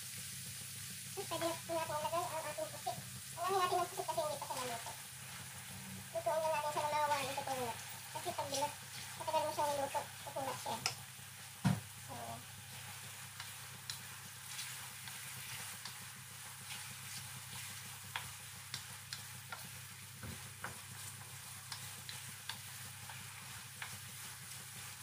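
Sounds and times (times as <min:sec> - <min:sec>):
squid sizzling in a frying pan: 0:00.0 - 0:25.0
steady low hum: 0:00.9 - 0:25.0
spatula tapping and scraping pan: 0:10.8 - 0:11.0, 0:12.7 - 0:25.0.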